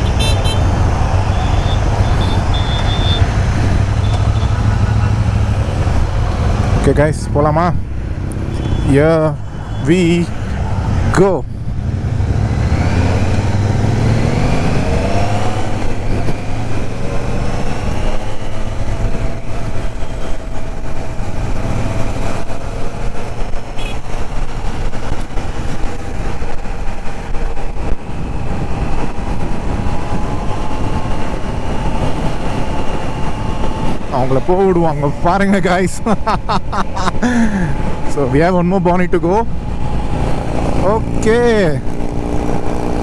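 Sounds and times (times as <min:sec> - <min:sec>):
wind rumble on microphone: 0:09.4 - 0:34.2
motorcycle engine pulling away: 0:11.7 - 0:19.5.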